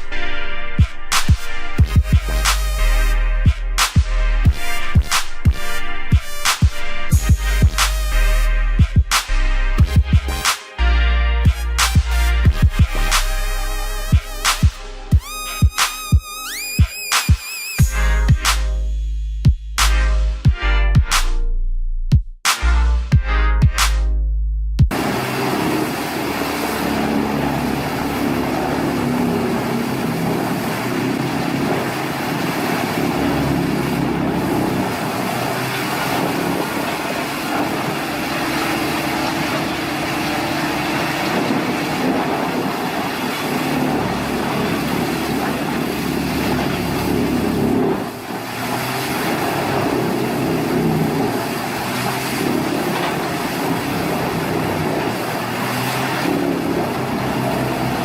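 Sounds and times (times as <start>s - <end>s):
heavy machinery engine running: 24.9s - 58.0s.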